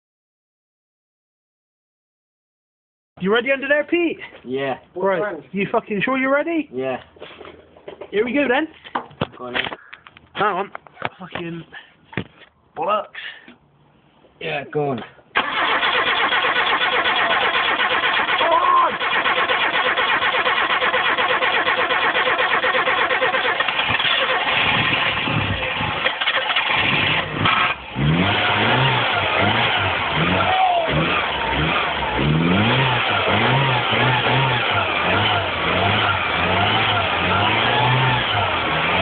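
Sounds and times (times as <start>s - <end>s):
starter motor cranking: 15.4s - 25.2s, 26.0s - 27.8s
car engine revving: 15.4s - 39.0s.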